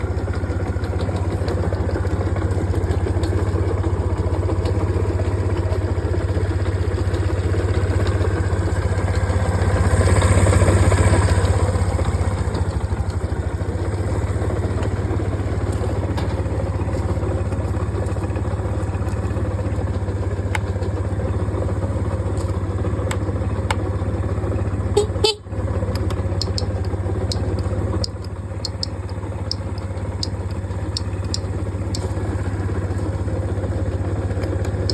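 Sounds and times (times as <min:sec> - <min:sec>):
scooter engine idling: 0:00.0 - 0:34.9
sharp clicks: 0:25.9 - 0:32.2.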